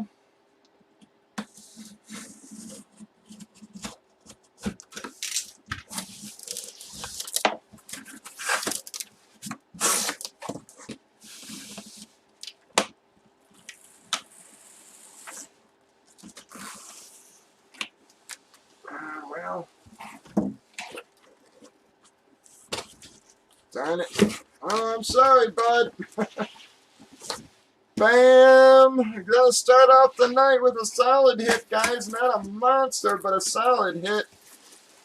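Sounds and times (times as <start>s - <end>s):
faint steady hum: 0.0s - 35.0s
packaging rustling: 2.8s - 12.6s
cardboard tearing: 4.6s - 10.6s.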